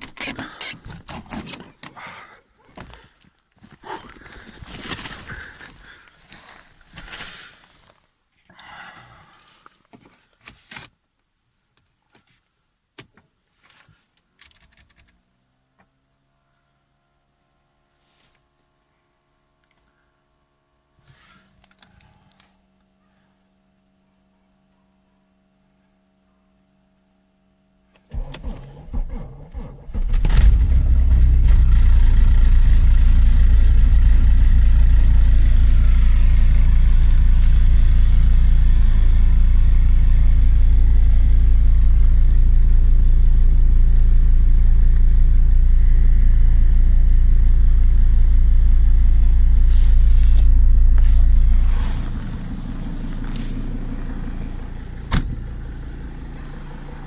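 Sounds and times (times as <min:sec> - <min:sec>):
starter motor cranking: 0:28.1 - 0:41.6
diesel engine running: 0:28.1 - 0:57.0.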